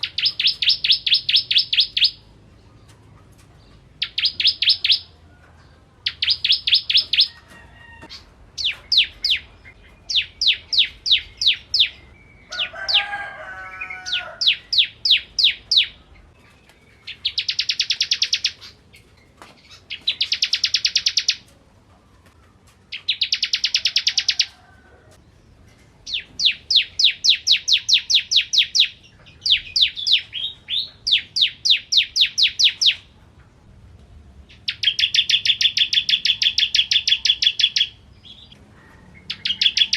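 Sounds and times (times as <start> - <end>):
bird singing rapid high notes: 0.0 - 2.3
lower chattering bird call: 0.0 - 13.2, 13.8 - 24.6, 25.7 - 33.2, 34.4 - 39.9.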